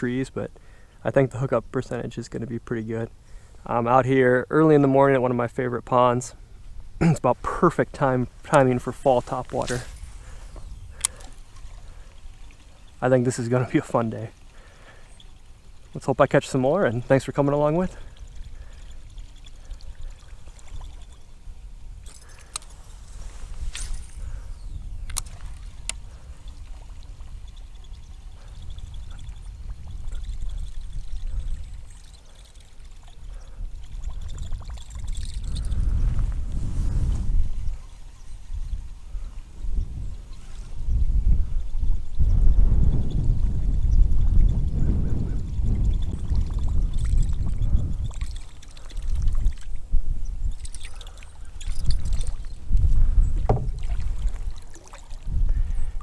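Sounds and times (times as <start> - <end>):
wind buffeting microphone: 5.4 - 56.0
water sloshing: 50.5 - 55.9
paddle knocking against hull: 53.4 - 54.5
paddle strokes in water: 53.4 - 55.7.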